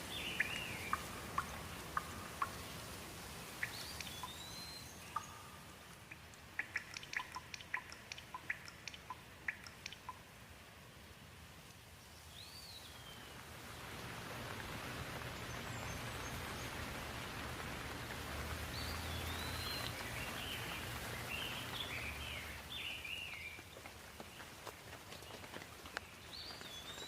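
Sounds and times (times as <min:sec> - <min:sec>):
bird chirping: 0:00.0 - 0:02.8, 0:03.5 - 0:10.3, 0:12.0 - 0:13.4, 0:18.7 - 0:24.4, 0:26.0 - 0:27.0
rain falling: 0:00.0 - 0:27.0.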